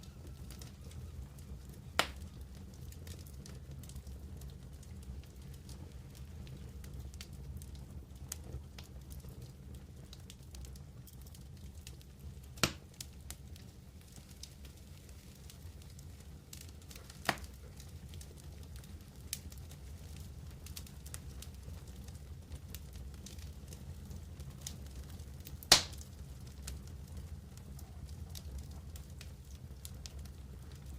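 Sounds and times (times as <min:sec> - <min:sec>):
campfire crackling: 0:00.0 - 0:30.9
sharp fire pops: 0:02.0 - 0:02.4, 0:12.5 - 0:13.1, 0:16.8 - 0:18.1, 0:25.6 - 0:26.9.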